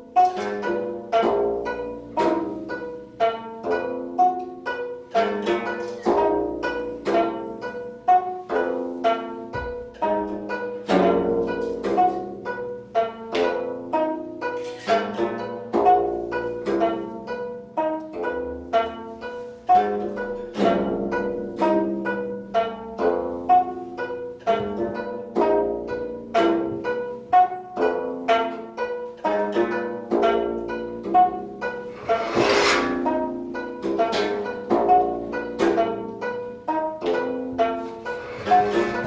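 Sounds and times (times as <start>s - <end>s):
plucked zither music: 0.0s - 39.0s.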